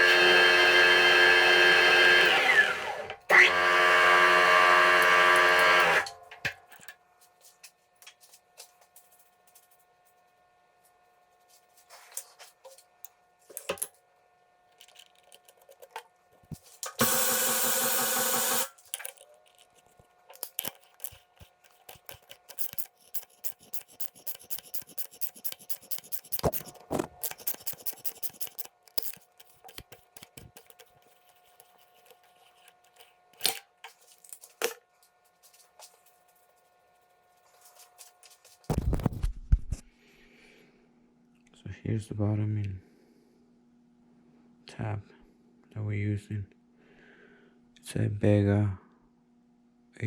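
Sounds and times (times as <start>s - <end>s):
machine buzzing: 0.0s - 6.1s, 16.9s - 18.8s, 20.4s - 31.1s
rapid clicking and scraping: 19.0s - 33.6s.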